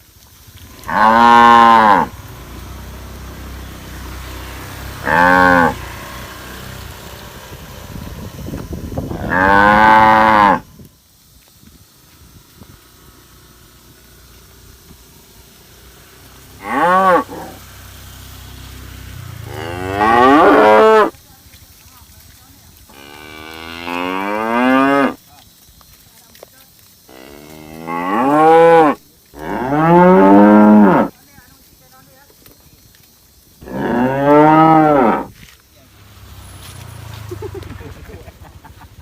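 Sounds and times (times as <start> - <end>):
cattle mooing: 5.0 - 5.8, 9.2 - 10.6, 16.6 - 17.6, 19.4 - 21.1, 33.6 - 35.3.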